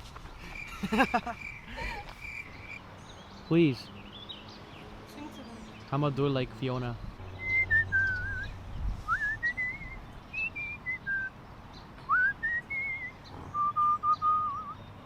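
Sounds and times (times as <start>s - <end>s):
person whistling a tune: 7.4s - 8.5s, 9.1s - 11.3s, 12.1s - 14.8s.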